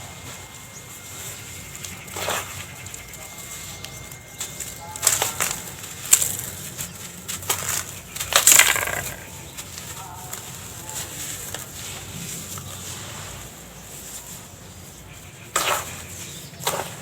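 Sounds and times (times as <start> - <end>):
dirt chunks crumbling and crunching: 1.3 - 13.6.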